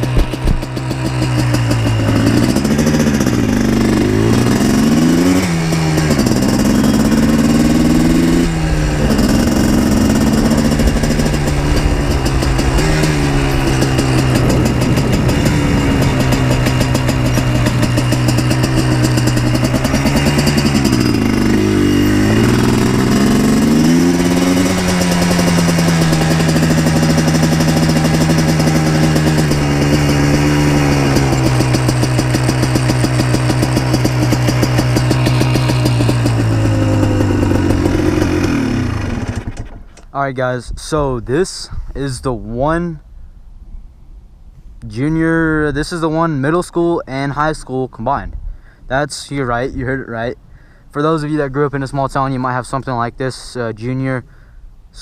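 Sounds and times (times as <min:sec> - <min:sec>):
two-stroke engine revving: 0:00.0 - 0:39.9.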